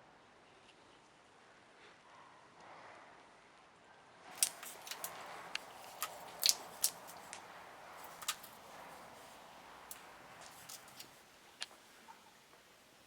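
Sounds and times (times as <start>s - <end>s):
small hard objects clicking: 4.4s - 11.8s.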